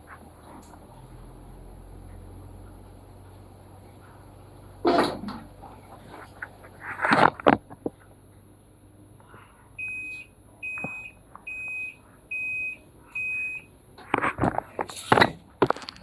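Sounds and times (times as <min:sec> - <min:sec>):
washing machine panel beeping: 0:09.8 - 0:13.7.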